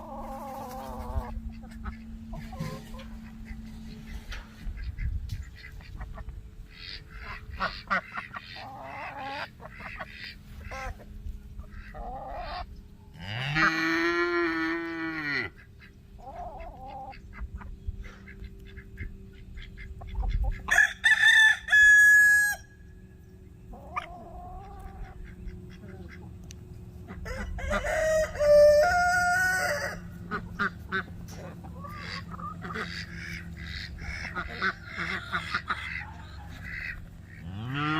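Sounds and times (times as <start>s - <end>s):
hens clucking: 0.0s - 21.8s, 23.2s - 37.9s
rooster crowing: 20.7s - 22.8s, 27.2s - 30.1s.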